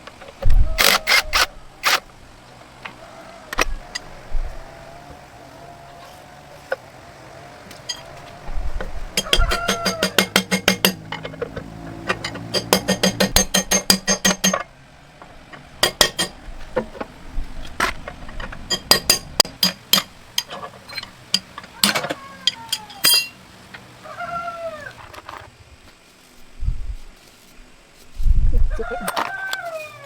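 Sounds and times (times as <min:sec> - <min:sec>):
metal ringing taps: 0:09.2 - 0:11.4, 0:12.1 - 0:14.7, 0:15.8 - 0:16.4, 0:18.7 - 0:23.4
sharp metal clinks: 0:12.2 - 0:14.6, 0:18.7 - 0:23.4.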